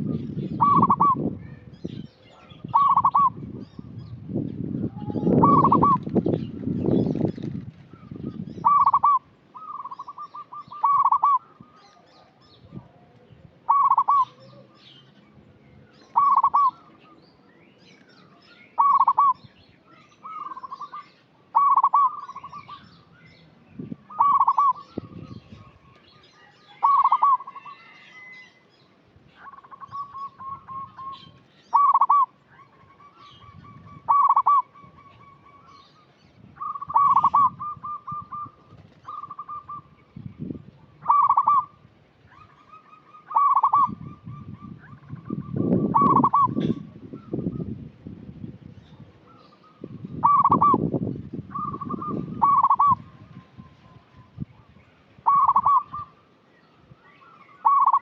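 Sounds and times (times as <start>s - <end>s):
dove cooing: 0.0s - 1.3s, 2.3s - 3.5s, 4.8s - 6.6s, 7.9s - 14.9s, 16.0s - 17.1s, 18.8s - 19.5s, 20.2s - 22.9s, 24.1s - 25.7s, 26.7s - 28.0s, 29.4s - 35.7s, 36.6s - 40.0s, 40.9s - 47.7s, 49.0s - 50.9s, 51.5s - 54.0s, 55.2s - 56.2s, 57.6s - 58.0s.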